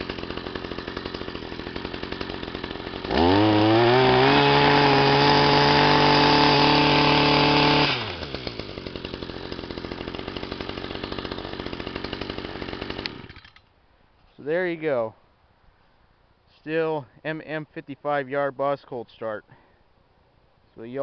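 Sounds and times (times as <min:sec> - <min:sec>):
tiller engine idling and revving: 0:00.0 - 0:13.6.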